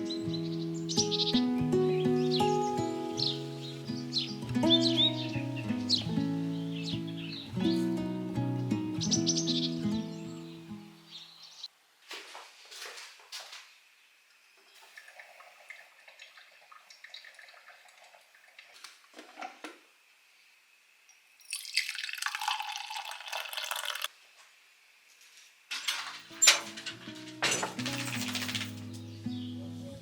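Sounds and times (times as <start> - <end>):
water dripping and splashing: 14.7 - 19.3, 21.4 - 24.1
water running: 14.7 - 19.6, 21.4 - 24.1.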